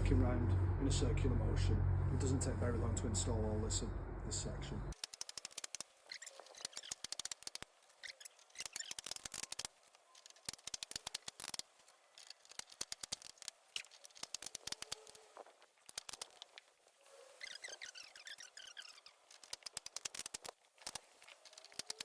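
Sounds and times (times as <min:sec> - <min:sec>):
sharp clicks: 0:04.9 - 0:11.6, 0:12.2 - 0:15.2, 0:15.8 - 0:16.6, 0:18.5 - 0:22.0.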